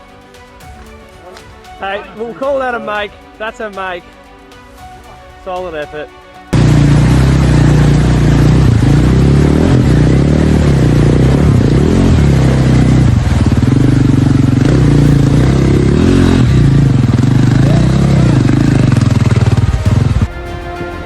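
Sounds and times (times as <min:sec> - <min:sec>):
dirt bike engine revving: 0:06.6 - 0:20.3.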